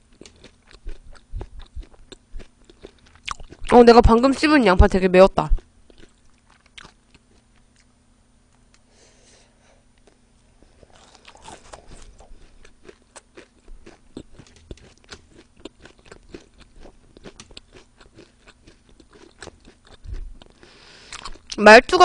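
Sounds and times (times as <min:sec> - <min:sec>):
chewing raw onion crunches: 0:00.0 - 0:03.8, 0:05.5 - 0:08.0, 0:10.0 - 0:21.6.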